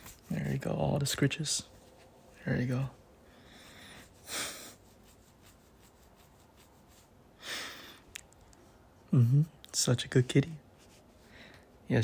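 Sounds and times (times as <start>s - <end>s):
man breathing softly: 3.2s - 4.9s, 7.4s - 8.1s, 11.1s - 11.8s.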